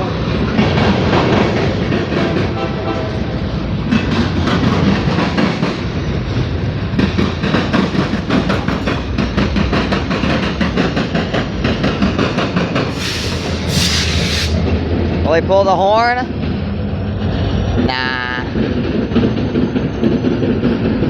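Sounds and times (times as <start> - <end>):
diesel locomotive rumble: 0.0 - 21.0
wheels clicking over rail joints: 3.8 - 13.8
brief hiss: 12.9 - 14.6.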